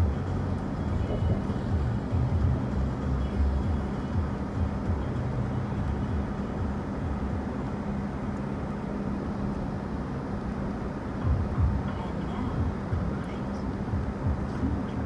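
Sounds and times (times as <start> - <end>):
vehicle engine running: 0.0 - 9.7.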